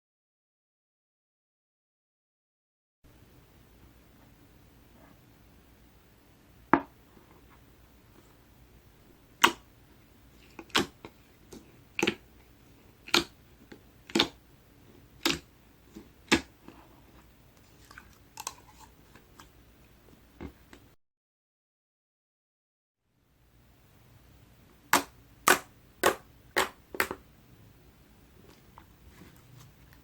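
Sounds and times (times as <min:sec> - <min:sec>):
slime squishing with wet pops: 0:10.5 - 0:12.2, 0:13.0 - 0:14.4, 0:15.2 - 0:16.5.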